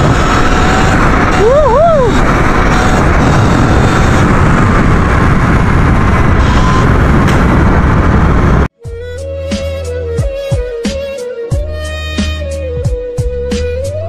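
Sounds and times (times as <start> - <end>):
rumble of bike on rough trail: 0.0 - 8.7
wind buffeting microphone: 0.0 - 8.7
background music: 8.8 - 14.0.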